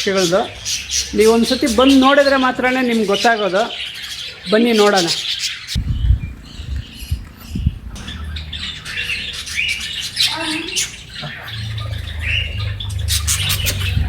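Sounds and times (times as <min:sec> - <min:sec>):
caged birds squawking and chirping: 0:00.0 - 0:14.0
steady low rumble: 0:05.8 - 0:14.0.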